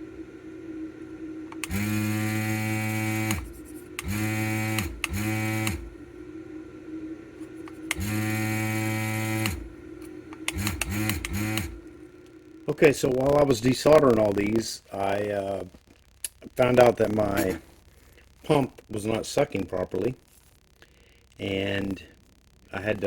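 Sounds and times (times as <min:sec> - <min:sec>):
vacuum pump motor drone: 0:00.0 - 0:12.6.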